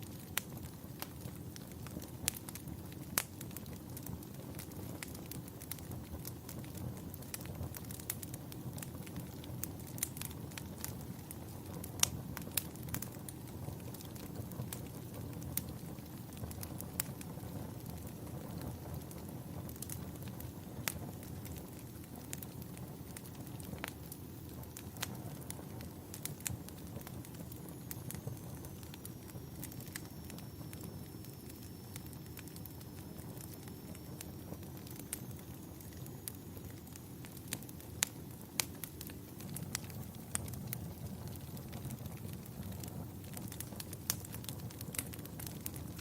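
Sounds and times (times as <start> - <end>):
fire crackling and popping: 0.0 - 46.0
low rumble of campfire flames: 0.0 - 46.0.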